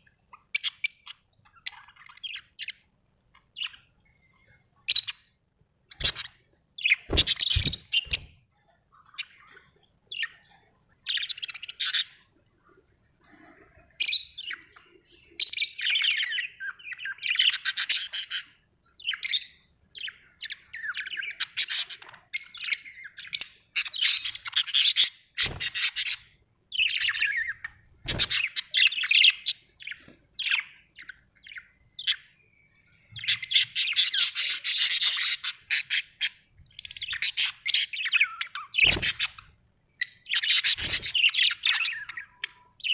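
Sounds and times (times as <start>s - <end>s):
parrots squawking: 6.0s - 8.3s, 23.8s - 30.6s, 33.2s - 39.4s, 40.0s - 42.6s.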